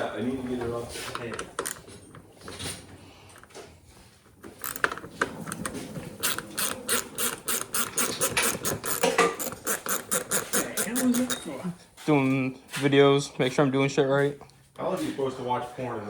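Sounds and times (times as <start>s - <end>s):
ratchet wrench clicking: 4.6s - 4.9s, 6.2s - 11.5s.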